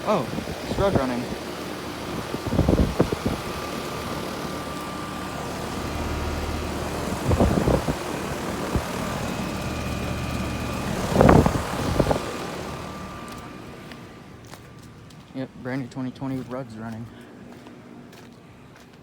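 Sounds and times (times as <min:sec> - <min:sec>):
air conditioner fan whoosh: 0:00.0 - 0:15.8
faint steady whine: 0:00.0 - 0:18.7
rumbling bursts: 0:05.3 - 0:13.8.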